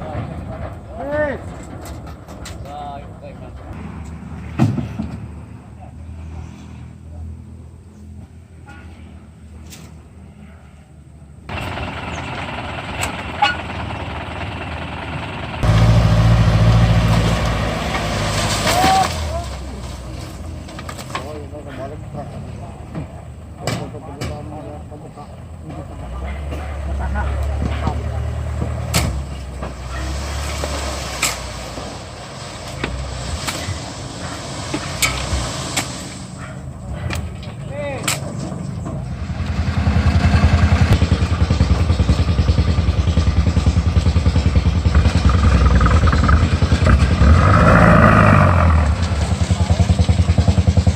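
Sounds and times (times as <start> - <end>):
truck diesel engine running: 11.4 - 37.6, 38.4 - 50.9.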